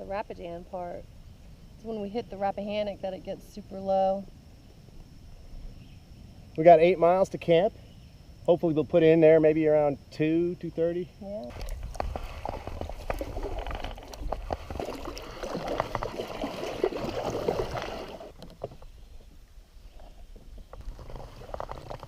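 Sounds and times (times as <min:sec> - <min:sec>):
paddle strokes splashing in water: 0:11.5 - 0:19.3, 0:19.9 - 0:22.0.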